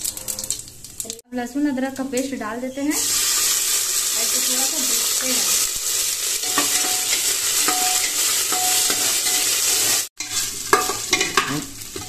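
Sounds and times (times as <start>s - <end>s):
spices sizzling in hot oil: 0.0s - 12.0s
metal spatula scraping pot: 6.4s - 12.0s.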